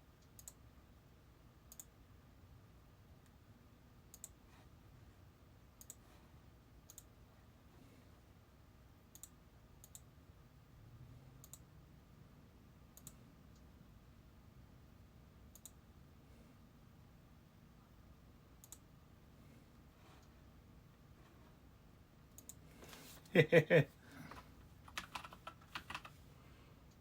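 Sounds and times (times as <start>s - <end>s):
small sharp clicks: 0.2s - 0.6s, 9.1s - 10.0s, 11.4s - 11.6s, 13.0s - 13.7s, 15.5s - 15.8s, 18.6s - 18.8s.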